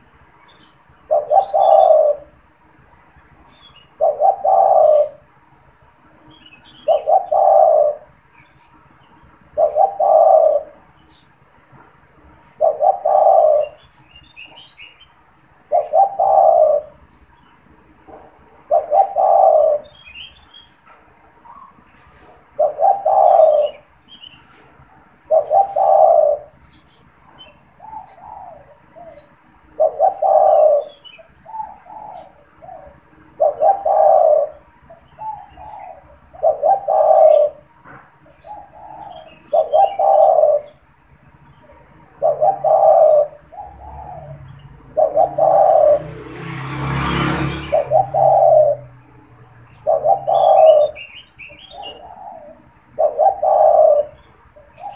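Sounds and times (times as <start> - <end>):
dove cooing: 0.0 - 2.4, 3.5 - 5.3, 6.3 - 8.7, 9.6 - 11.3, 12.4 - 14.9, 15.6 - 17.3, 18.0 - 40.9, 41.5 - 54.9
small birds chirping: 0.0 - 54.9.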